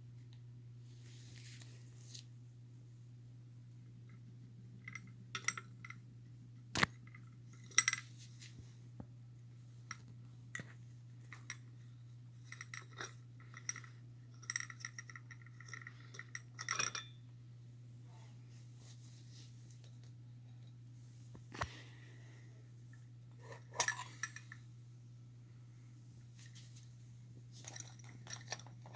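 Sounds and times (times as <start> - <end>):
steady low hum: 0.0 - 28.9
small metal parts clinking: 12.4 - 17.2, 23.4 - 24.6.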